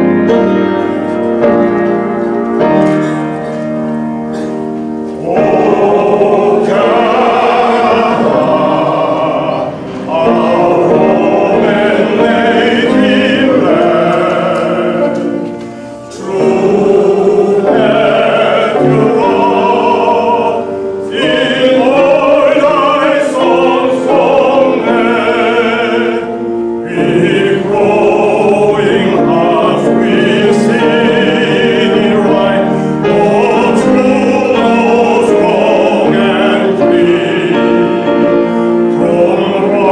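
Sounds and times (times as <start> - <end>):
piano accompaniment: 0.0 - 39.9
choir singing an anthem: 5.1 - 39.9.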